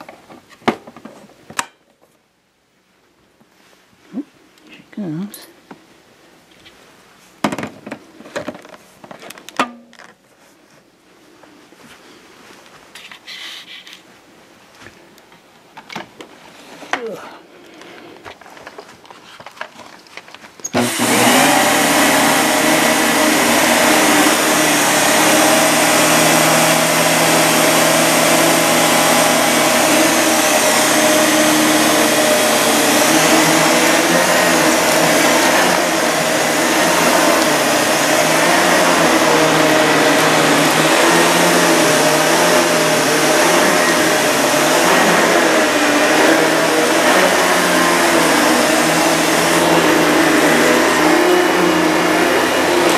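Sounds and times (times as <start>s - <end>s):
vacuum cleaner running: 20.6s - 52.9s.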